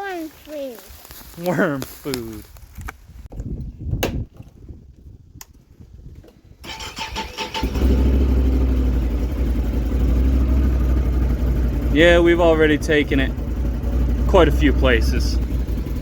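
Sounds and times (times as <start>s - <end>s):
quad engine starting and idling: 6.6s - 16.0s.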